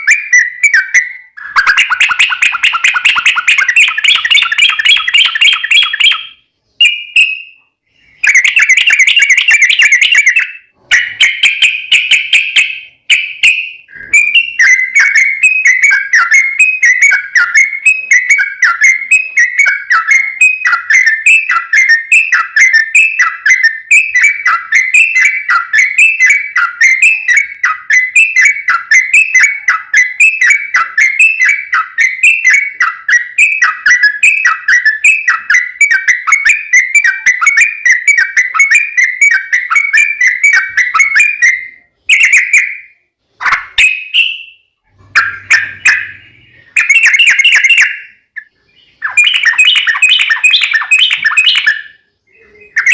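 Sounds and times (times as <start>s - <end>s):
bird down-slurred whistled notes: 0.0s - 52.9s
bird warbling trill: 0.0s - 52.9s.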